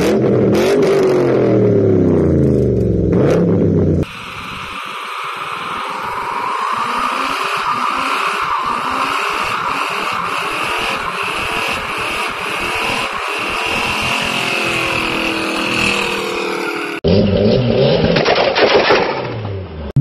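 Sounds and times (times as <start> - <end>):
car engine running: 1.7 - 17.4.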